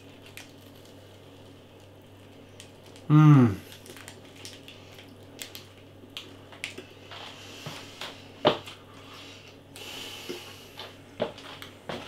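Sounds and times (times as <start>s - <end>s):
crunchy nut bar chewing: 2.2s - 6.9s.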